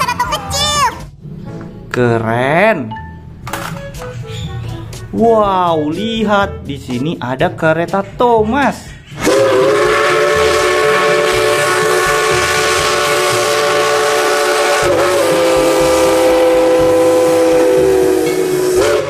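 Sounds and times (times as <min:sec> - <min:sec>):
loud steam hiss: 0:09.2 - 0:19.0
steam locomotive whistle: 0:09.2 - 0:19.0.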